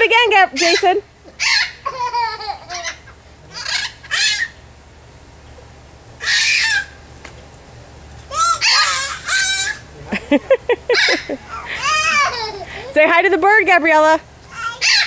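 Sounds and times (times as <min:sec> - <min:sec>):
parrot calling: 0:00.0 - 0:04.8, 0:05.4 - 0:07.1, 0:08.3 - 0:13.3, 0:13.9 - 0:15.0.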